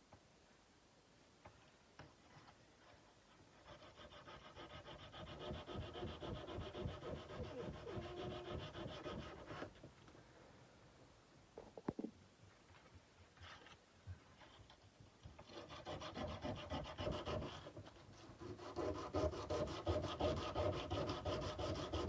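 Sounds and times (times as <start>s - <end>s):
sandpaper rubbing on steel blade: 3.6s - 9.7s.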